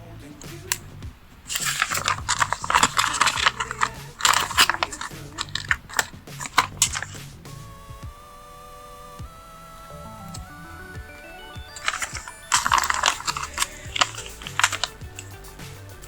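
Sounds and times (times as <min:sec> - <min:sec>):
sticker sheets crinkling: 0:00.5 - 0:07.4, 0:11.7 - 0:15.5.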